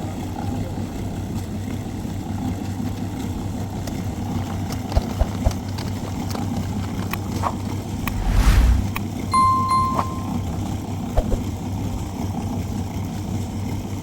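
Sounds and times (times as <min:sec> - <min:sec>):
brief rush of noise: 0:08.0 - 0:09.0.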